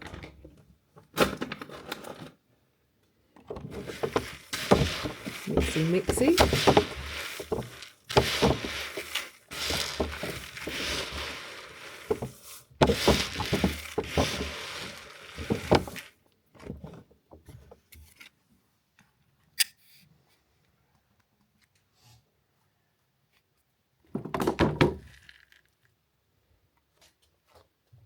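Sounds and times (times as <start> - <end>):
bird seed rustling and scraping: 3.6 - 16.1.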